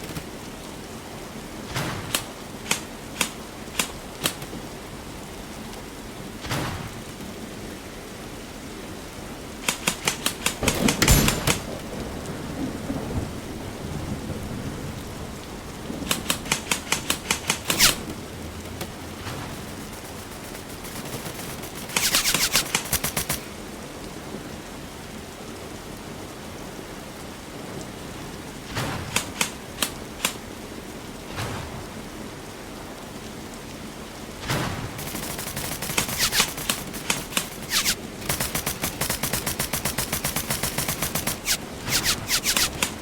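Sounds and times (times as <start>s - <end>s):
airsoft guns firing: 9.6s - 12.0s, 15.4s - 18.4s, 19.1s - 23.6s, 28.8s - 30.4s, 34.4s - 43.0s.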